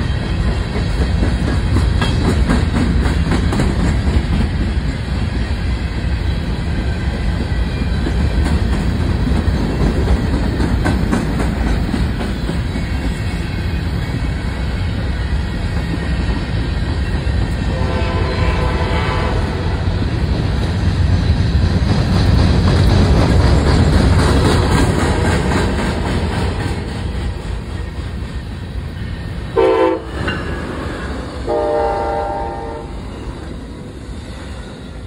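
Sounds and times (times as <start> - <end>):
freight train rumbling past: 0.0 - 35.0
train horn: 17.6 - 20.0, 29.6 - 30.4, 31.4 - 33.1.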